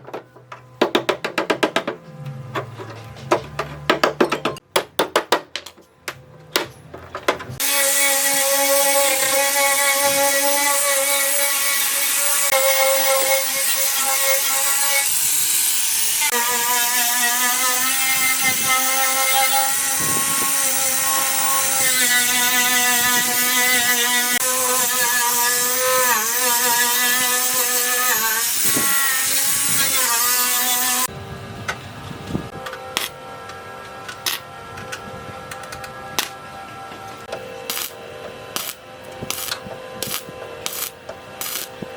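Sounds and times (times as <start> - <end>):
electric power tool running: 32.4 - 41.9.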